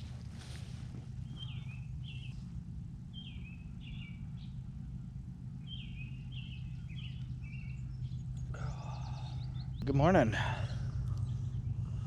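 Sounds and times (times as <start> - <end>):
steady low hum: 0.0 - 12.0
songbirds whistling: 1.2 - 2.4, 3.1 - 4.6, 5.6 - 9.8.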